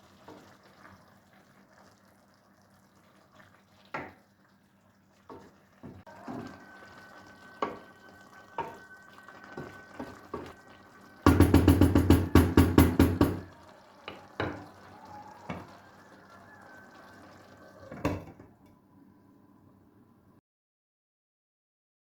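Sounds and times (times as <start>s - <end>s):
loud knocks: 11.3s - 13.4s.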